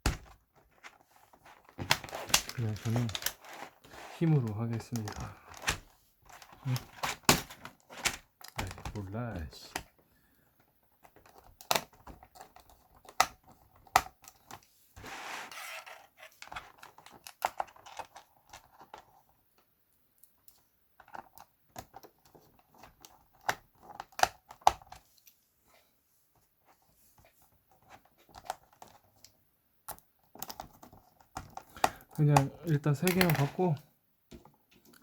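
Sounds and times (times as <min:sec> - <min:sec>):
plastic scraping: 0:00.0 - 0:09.1, 0:15.0 - 0:18.8, 0:30.3 - 0:34.8
plastic clicks and snaps: 0:29.2 - 0:33.5.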